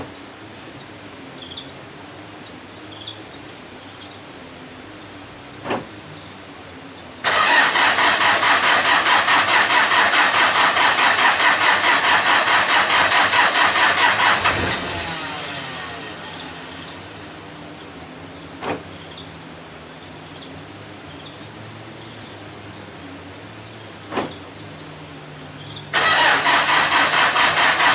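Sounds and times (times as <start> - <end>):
diesel engine idling: 2.1 - 27.9
starter cranking engine: 7.2 - 17.5, 25.9 - 27.9.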